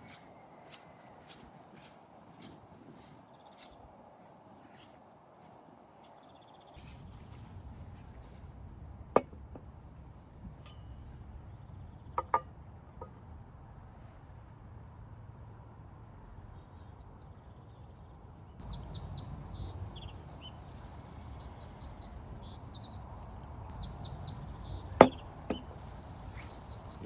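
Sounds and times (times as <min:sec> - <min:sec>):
songbird chirping: 0:00.0 - 0:07.6, 0:16.0 - 0:27.0
sharp knock: 0:25.0 - 0:25.7.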